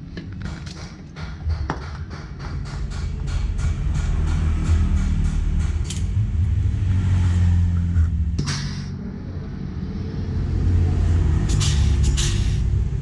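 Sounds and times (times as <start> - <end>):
sharp click with hiss: 11.5 - 12.7.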